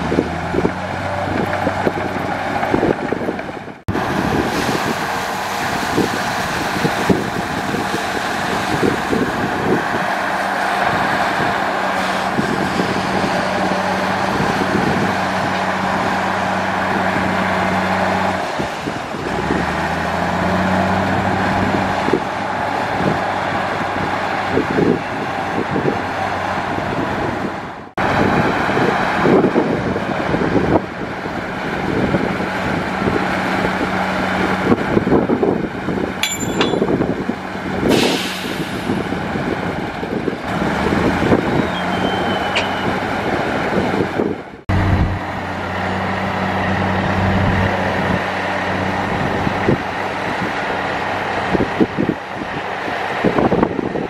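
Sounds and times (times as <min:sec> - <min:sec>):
diesel earthmoving machinery: 0:00.0 - 0:54.0
metal clanks and knocks: 0:36.2 - 0:37.0.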